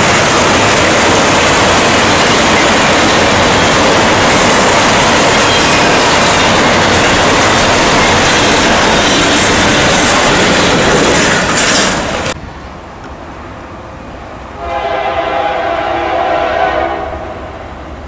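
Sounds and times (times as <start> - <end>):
freight train wheels on rails: 0.0 - 18.0.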